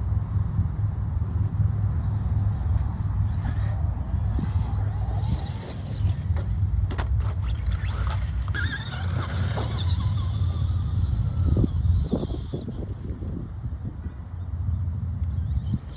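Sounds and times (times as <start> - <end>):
steady low rumble: 0.0 - 15.4
electric motor whining: 3.2 - 13.1, 15.2 - 15.9.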